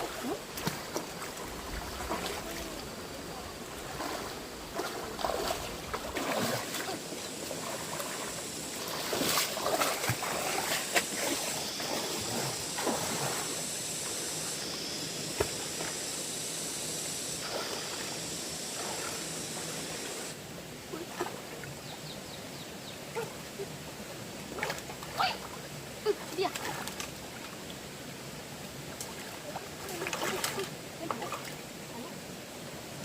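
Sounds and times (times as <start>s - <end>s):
water splashes and knocks: 0.0s - 2.8s, 3.7s - 12.2s, 12.8s - 13.5s, 15.3s - 16.0s, 24.6s - 27.6s, 28.9s - 31.6s
stream water rushing: 0.0s - 33.0s.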